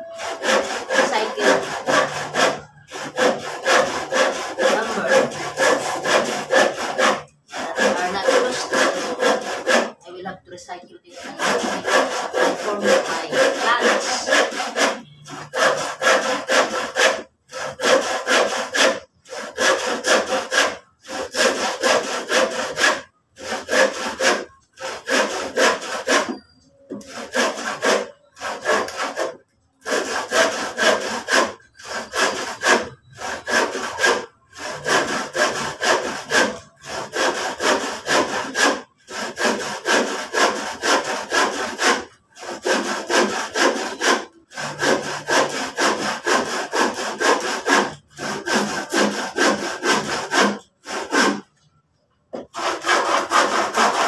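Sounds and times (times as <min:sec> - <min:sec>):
handsaw cutting wood: 0:00.0 - 0:51.7, 0:52.4 - 0:54.0.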